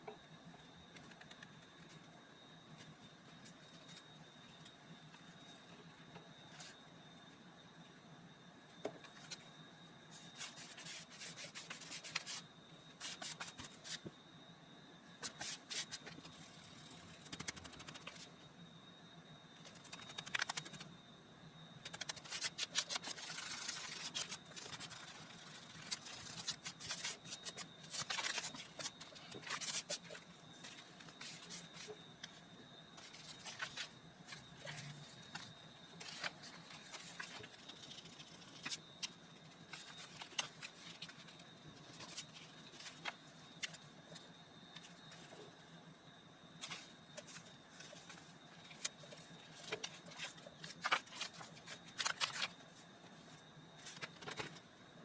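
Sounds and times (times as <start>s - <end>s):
paper rustling and scraping: 10.1s - 12.4s, 13.0s - 14.1s, 15.2s - 18.3s, 21.9s - 32.0s, 33.0s - 43.8s, 46.6s - 52.6s.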